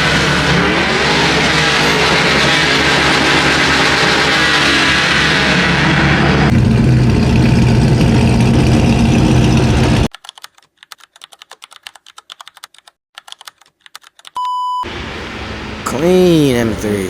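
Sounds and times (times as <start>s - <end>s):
loud steady low-pitched sound: 0.0s - 10.1s
quick irregular clicks: 10.1s - 14.4s.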